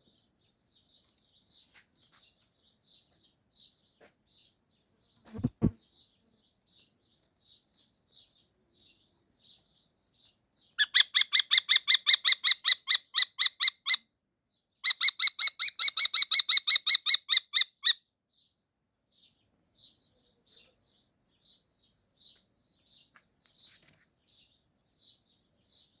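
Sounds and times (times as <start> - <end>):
bird chirping rapidly: 10.8 - 14.0.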